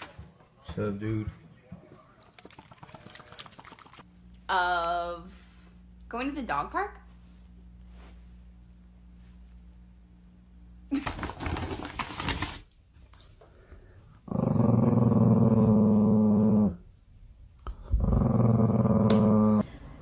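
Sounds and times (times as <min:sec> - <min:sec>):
dog growling: 0:14.2 - 0:16.8, 0:17.7 - 0:19.6.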